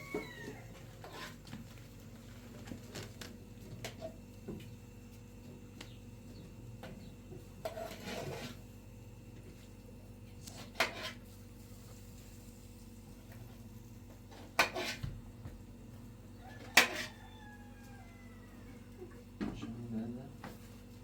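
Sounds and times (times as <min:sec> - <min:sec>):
pots and utensils clinking: 0:16.8 - 0:17.2.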